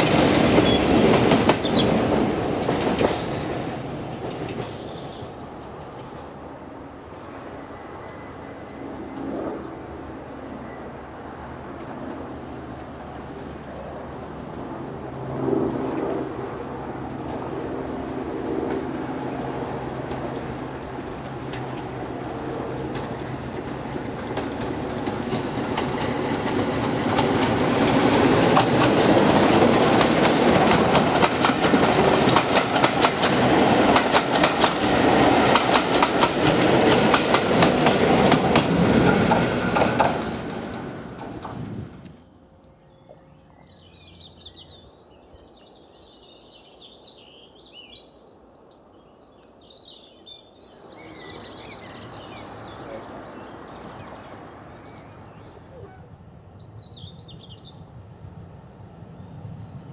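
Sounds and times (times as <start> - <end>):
diesel locomotive passing: 0.0 - 48.3, 49.2 - 59.9
birds chirping: 0.6 - 2.1, 2.8 - 6.6, 42.1 - 58.0
wheels clicking over rail joints: 22.9 - 42.2.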